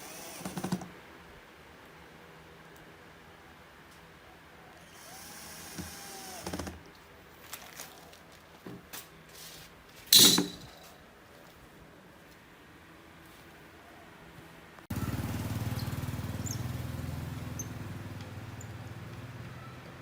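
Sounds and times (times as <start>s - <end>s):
power drill running: 0.0s - 0.9s, 4.8s - 6.8s.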